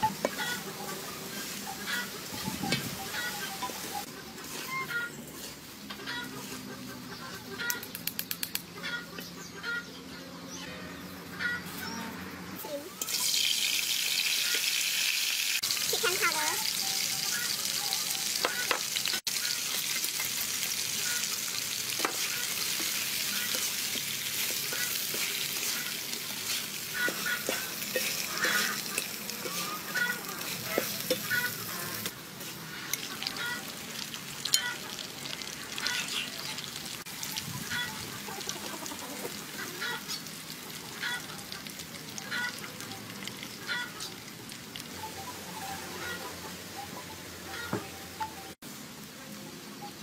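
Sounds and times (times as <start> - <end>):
food sizzling in hot oil: 0.0 - 4.1, 13.0 - 45.9.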